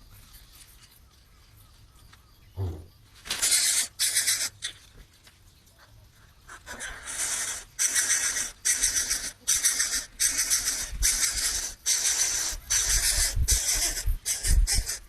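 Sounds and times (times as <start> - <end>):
bird chick hissing rasps: 2.6 - 4.8, 6.5 - 15.0.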